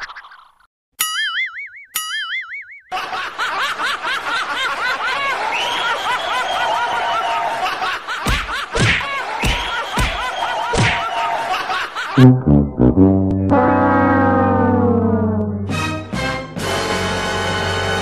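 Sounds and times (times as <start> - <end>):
low thumps: 12.2 - 16.1.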